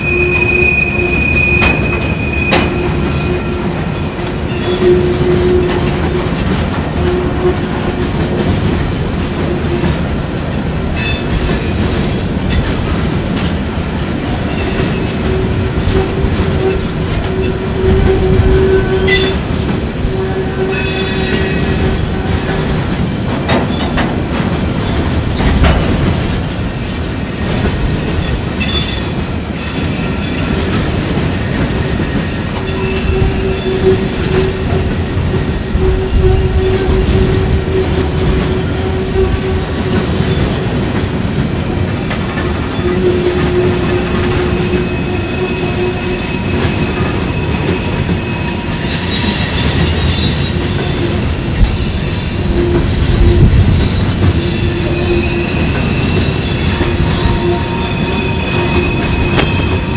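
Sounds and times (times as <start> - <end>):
steel wheels rumbling on rail: 0.0 - 59.9
wheel flanges squealing: 27.0 - 40.9, 42.0 - 59.9.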